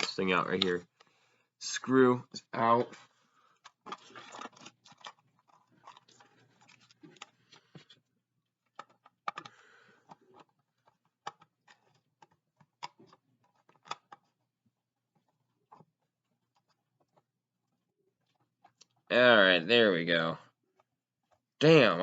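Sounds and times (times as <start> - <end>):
packaging clicks and scraping: 3.6 - 8.0, 8.7 - 14.5.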